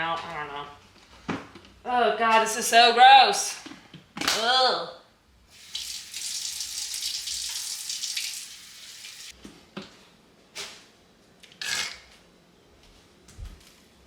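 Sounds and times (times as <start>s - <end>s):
tap water running into sink: 5.5s - 9.3s
splashes and knocks of rinsing: 5.6s - 9.3s.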